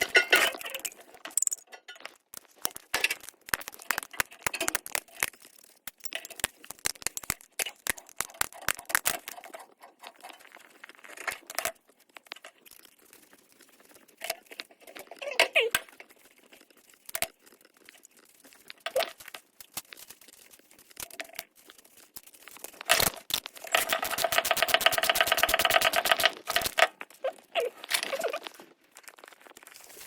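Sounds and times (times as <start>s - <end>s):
tools and metal fittings clinking: 0.0s - 12.8s.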